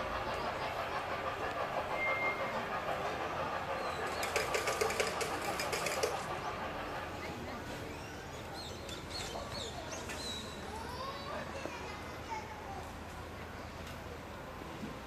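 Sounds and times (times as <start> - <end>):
machine running steadily: 0.0 - 7.6
rapid even clicking: 4.0 - 6.3.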